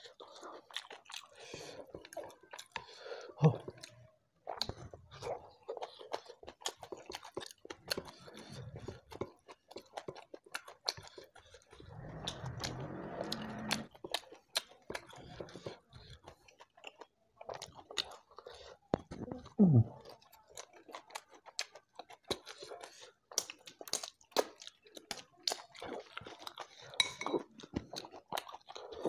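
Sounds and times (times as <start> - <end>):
chewing with wet mouth clicks: 0.0 - 19.4, 20.0 - 29.0.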